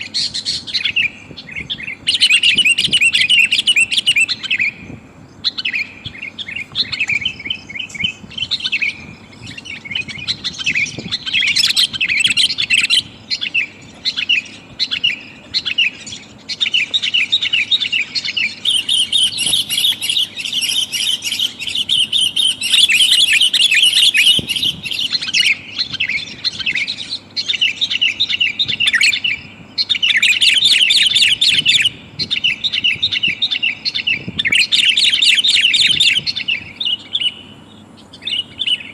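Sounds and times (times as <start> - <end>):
bird chattering chirps: 0.0 - 38.9.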